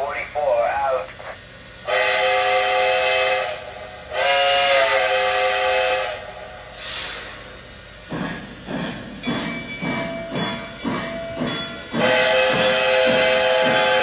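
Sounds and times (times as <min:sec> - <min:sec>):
steam hiss: 0:00.0 - 0:14.0
steam whistle blasts: 0:01.8 - 0:07.4, 0:12.0 - 0:14.0.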